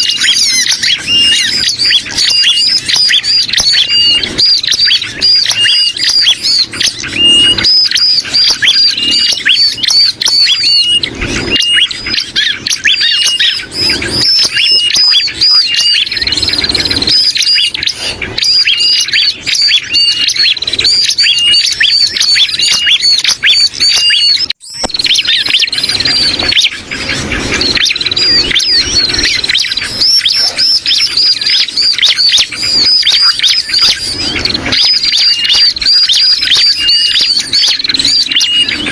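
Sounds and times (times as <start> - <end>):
birds chattering high chirps: 0.0 - 38.9.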